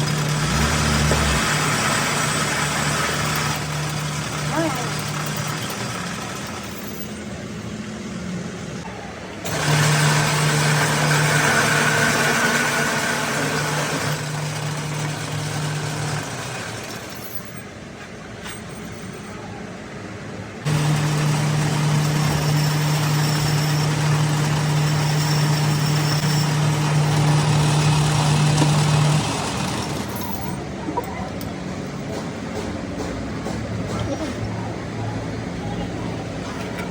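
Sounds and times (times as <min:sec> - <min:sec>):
machine humming and hissing: 0:09.4 - 0:17.1, 0:20.7 - 0:30.2.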